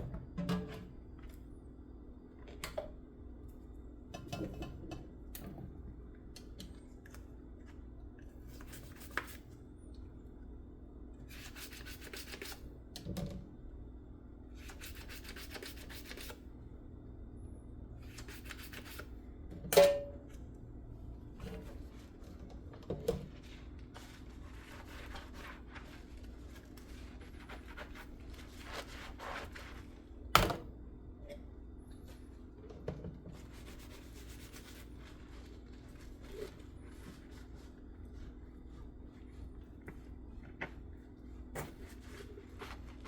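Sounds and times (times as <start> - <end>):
sponge scrubbing dishes: 21.3 - 30.1, 32.1 - 43.0.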